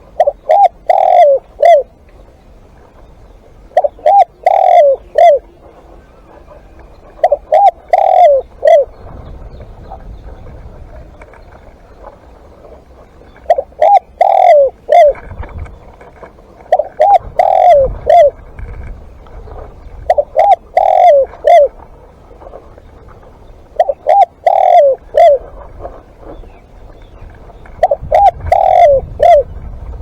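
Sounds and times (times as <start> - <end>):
dove cooing: 0.0 - 1.9, 3.7 - 11.6, 12.5 - 16.0, 16.6 - 18.8, 20.0 - 21.8, 23.7 - 26.5, 27.8 - 29.8.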